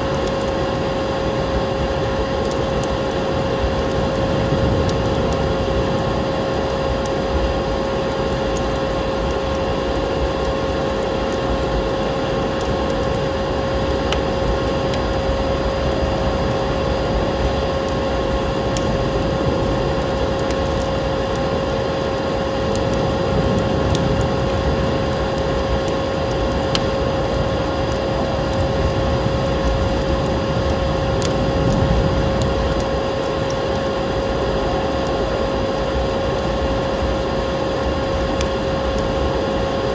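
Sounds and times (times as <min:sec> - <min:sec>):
wood fire crackling and popping: 0:00.0 - 0:39.9
snowstorm wind rushing: 0:03.0 - 0:08.0, 0:13.2 - 0:34.2.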